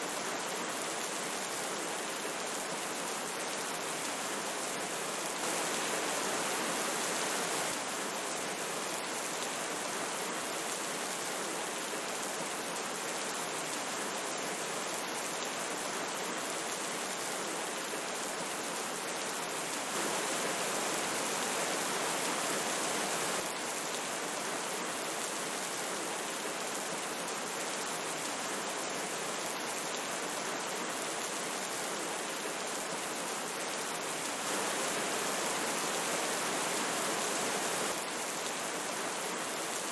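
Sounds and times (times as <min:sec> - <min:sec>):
rain falling: 0:00.0 - 0:39.9
river flowing: 0:00.3 - 0:10.7, 0:16.6 - 0:39.9.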